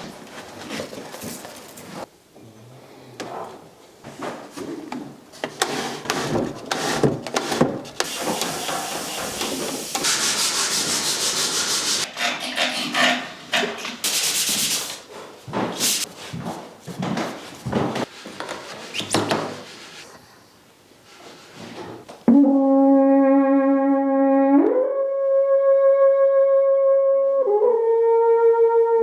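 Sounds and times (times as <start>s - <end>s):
sandpaper rubbing on wood: 5.7s - 13.1s, 13.8s - 15.0s, 15.8s - 16.1s.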